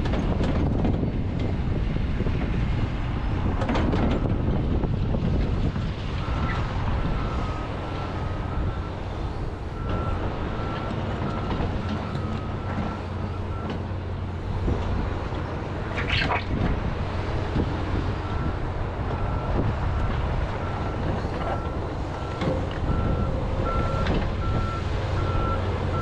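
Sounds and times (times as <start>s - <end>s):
excavator diesel engine running: 0.0s - 26.0s
harsh scrape: 15.8s - 16.7s.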